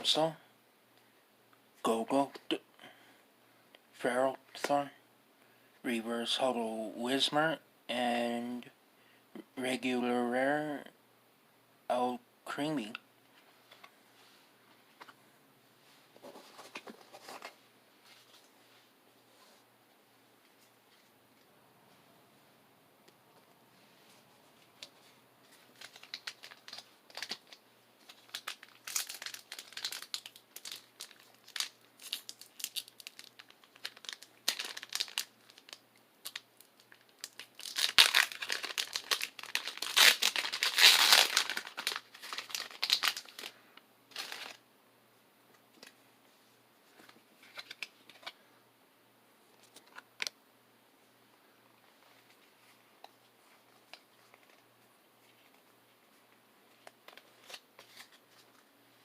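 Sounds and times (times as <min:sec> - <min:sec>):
foil wrapper crinkling: 0:25.6 - 0:44.6
foil pack tearing: 0:37.2 - 0:43.5.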